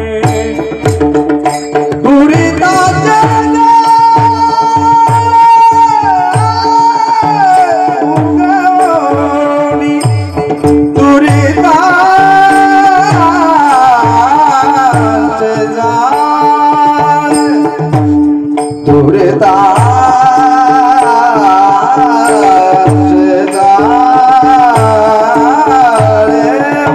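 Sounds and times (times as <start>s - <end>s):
hand drum strokes: 0.0s - 26.9s
person singing devotional melody: 0.0s - 26.9s.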